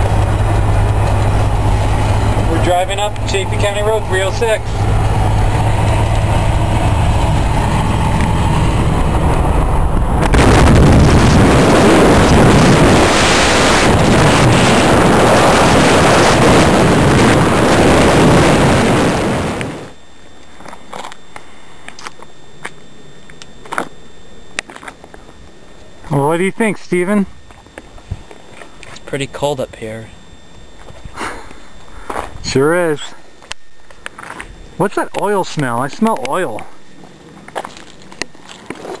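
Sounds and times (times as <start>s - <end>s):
pickup engine humming: 0.0s - 20.0s
road and wind noise rushing: 0.0s - 20.0s.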